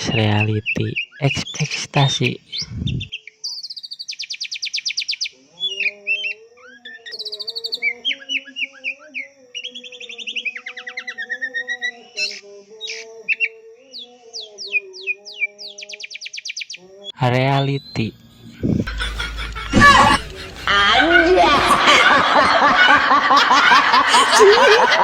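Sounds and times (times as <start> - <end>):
bird singing trills and whistles: 2.4 - 16.9.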